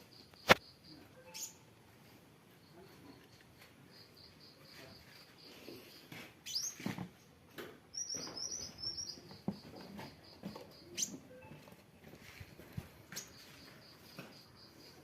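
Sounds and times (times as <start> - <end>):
sunbird singing: 0.0 - 1.7, 7.9 - 11.5.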